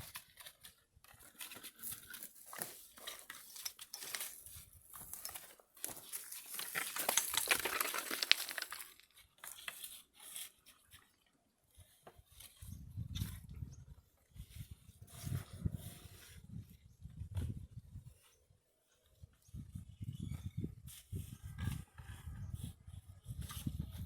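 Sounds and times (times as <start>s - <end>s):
material rustling and crinkling: 1.9s - 9.0s.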